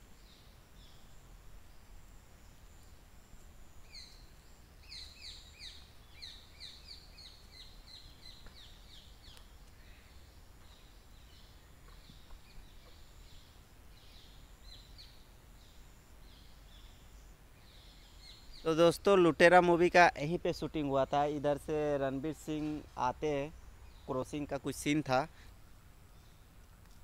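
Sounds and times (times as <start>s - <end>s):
bird chirping: 3.7s - 27.0s.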